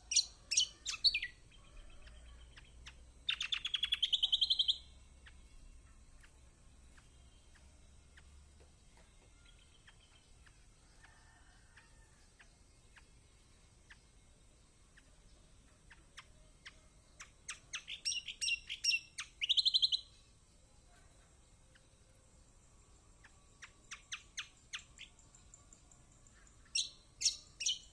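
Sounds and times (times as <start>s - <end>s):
bird trill: 0.0s - 10.6s, 14.9s - 20.2s, 23.1s - 27.9s
bird chirping: 0.0s - 27.9s.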